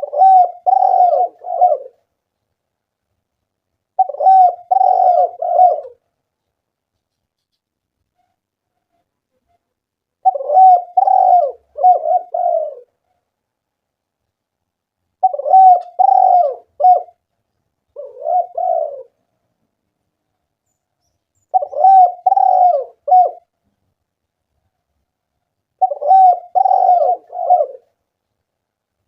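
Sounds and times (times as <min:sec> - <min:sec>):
dove cooing: 0:00.0 - 0:02.1, 0:04.0 - 0:06.0, 0:10.2 - 0:13.0, 0:15.2 - 0:17.2, 0:17.9 - 0:19.2, 0:21.4 - 0:23.5, 0:25.8 - 0:28.0.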